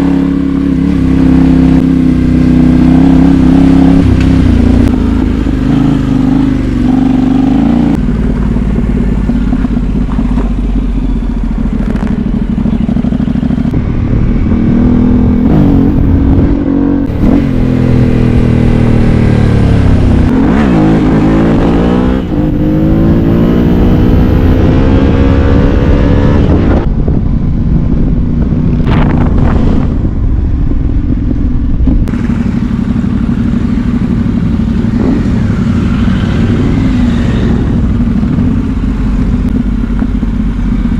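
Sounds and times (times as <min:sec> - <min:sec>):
motorcycle engine revving: 0:00.0 - 0:40.9
steady rushing noise: 0:13.7 - 0:40.9.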